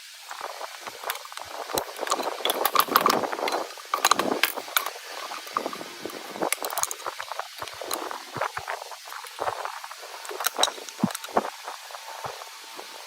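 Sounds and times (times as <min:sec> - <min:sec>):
metal parts clinking: 0:00.7 - 0:08.2, 0:10.2 - 0:11.5.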